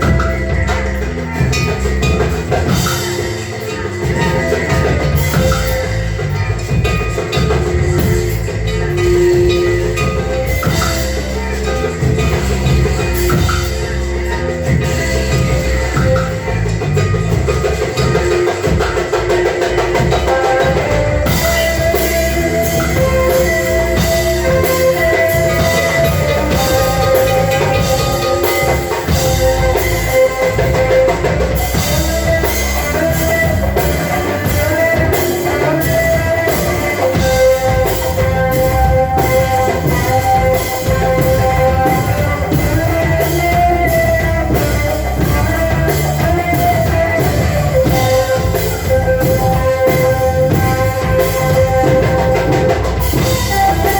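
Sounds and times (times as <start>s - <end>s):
drum kit beat: 0.0s - 53.9s
sustained melody: 0.0s - 53.9s.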